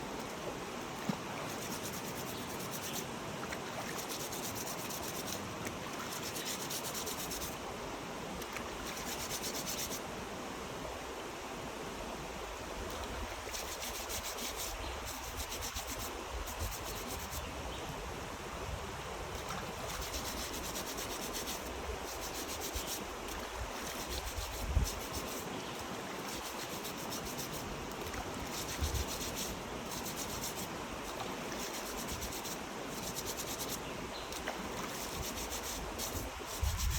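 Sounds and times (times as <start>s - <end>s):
steady hiss: 0.0s - 36.9s
rough scraping and rubbing: 26.2s - 27.7s, 34.9s - 36.9s.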